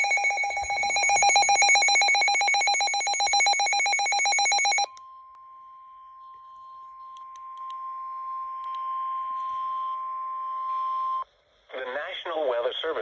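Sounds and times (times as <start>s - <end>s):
pulsing electronic alert trill: 0.0s - 4.9s.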